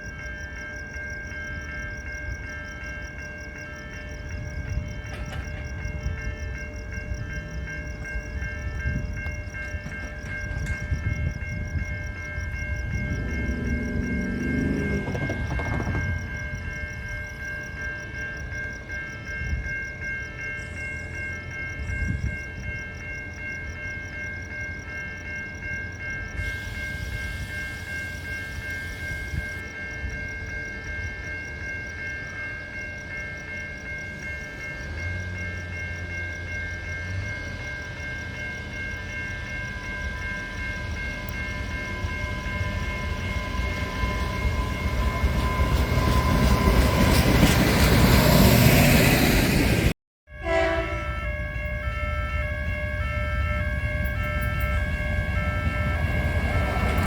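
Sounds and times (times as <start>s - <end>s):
train running: 0.0s - 57.0s.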